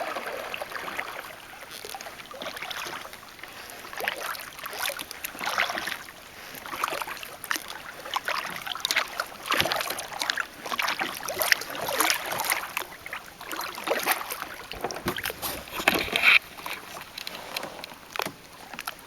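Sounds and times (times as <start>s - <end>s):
kayak paddle strokes in water: 0.0s - 19.0s
water splashing and dripping: 6.7s - 17.4s.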